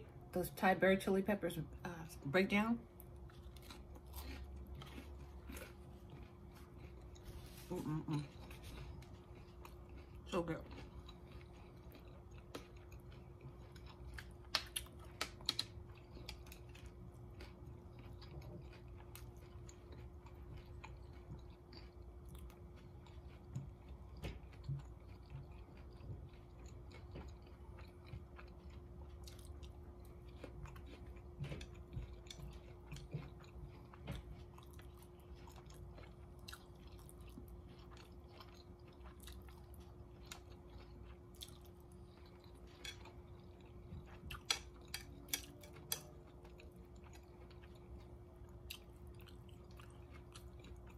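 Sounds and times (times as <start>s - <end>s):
faint steady hum: 0.0s - 50.9s
person chewing food: 2.9s - 50.9s
chopsticks clicking on plate: 44.4s - 46.1s.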